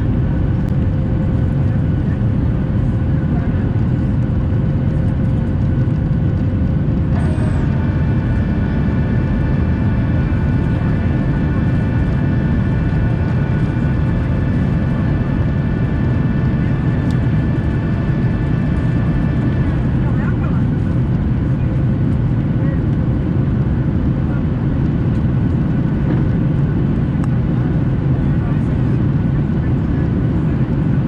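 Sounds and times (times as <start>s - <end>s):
jet engines rumbling in cabin: 0.0s - 31.0s
whining engine tone: 5.8s - 21.4s.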